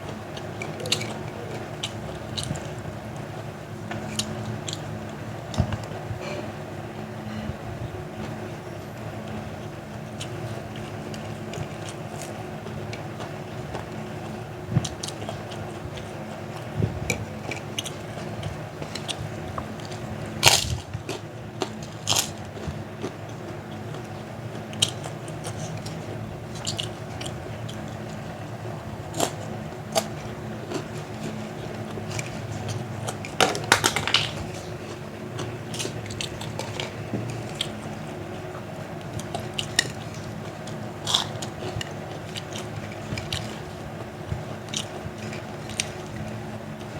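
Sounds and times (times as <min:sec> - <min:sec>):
chewing: 0:00.0 - 0:05.9, 0:09.2 - 0:46.9
steady low hum: 0:00.0 - 0:46.9
crisp crunches of crackers: 0:16.6 - 0:38.0, 0:39.0 - 0:43.7.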